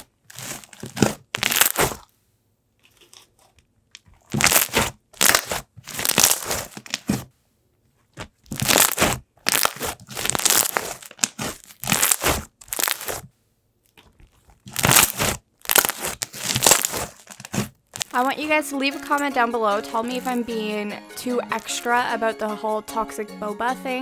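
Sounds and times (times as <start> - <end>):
hands squishing slime: 0.0 - 2.1, 4.2 - 7.2, 8.2 - 13.3, 14.0 - 18.5.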